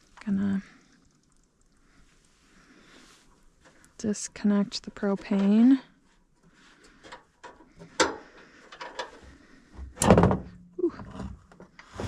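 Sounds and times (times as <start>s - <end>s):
heavy thump: 10.0s - 10.6s.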